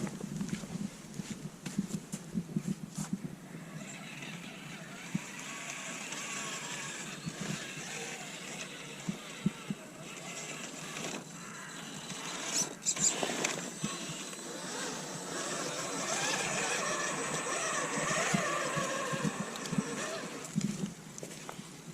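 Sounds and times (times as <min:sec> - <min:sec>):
toy electric motor whirring: 0:03.7 - 0:20.6
scraping over obstacles: 0:04.8 - 0:20.9.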